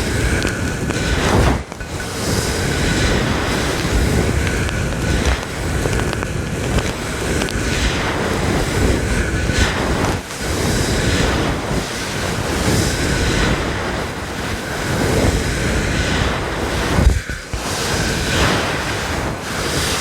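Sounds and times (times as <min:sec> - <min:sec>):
brush rubbing microphone: 0:00.0 - 0:11.8.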